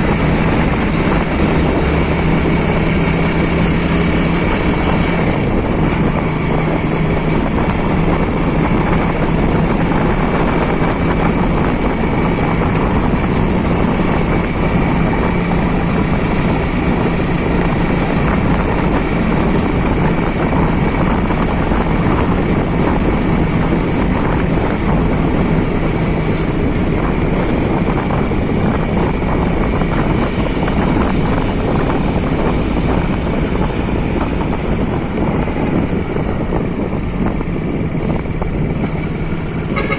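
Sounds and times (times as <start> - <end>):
vehicle engine running: 0.0 - 39.9
wind rumbling on microphone: 0.0 - 39.9.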